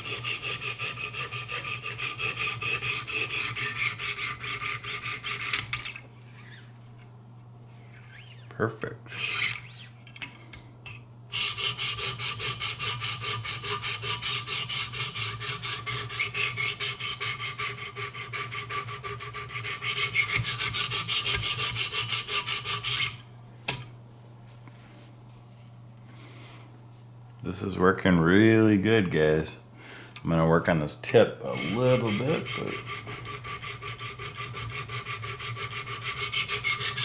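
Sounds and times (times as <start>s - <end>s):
sharpener scraping knife blade: 0.0s - 6.6s, 31.5s - 37.0s.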